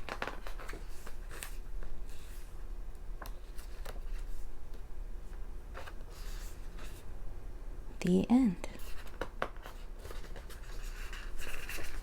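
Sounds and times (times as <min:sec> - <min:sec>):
magazine pages turning: 0:00.0 - 0:02.5, 0:03.2 - 0:04.4, 0:08.8 - 0:12.0.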